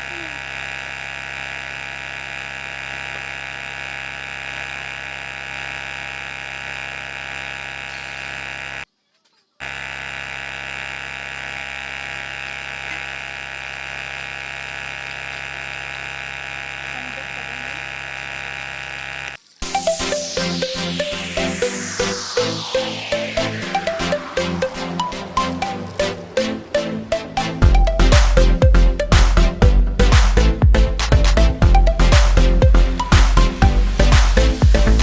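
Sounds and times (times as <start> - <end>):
small electric motor whining: 0.0 - 8.9, 9.6 - 30.5, 31.4 - 35.0.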